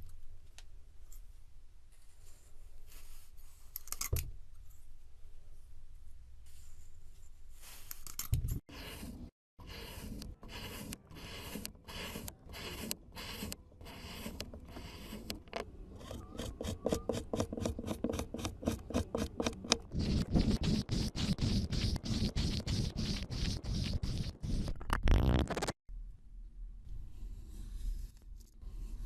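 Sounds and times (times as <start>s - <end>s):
scraping strokes: 6.4s - 15.4s, 16.0s - 25.8s.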